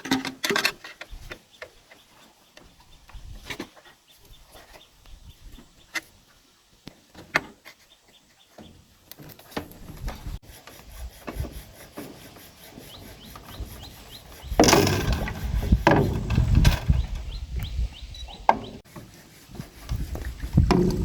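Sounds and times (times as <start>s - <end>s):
wood rubbing and scraping: 7.2s - 21.0s
wood knocking and clicking: 14.6s - 17.7s, 18.4s - 18.8s, 20.6s - 21.0s.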